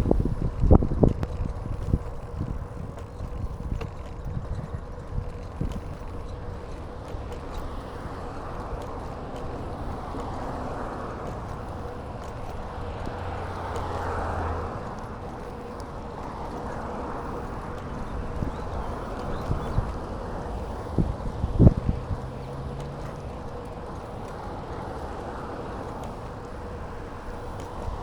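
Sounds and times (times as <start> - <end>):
wind on microphone: 0.0 - 6.8, 16.2 - 28.0
bicycle tyres rolling: 0.0 - 28.0
small clicks and rattles: 0.0 - 28.0.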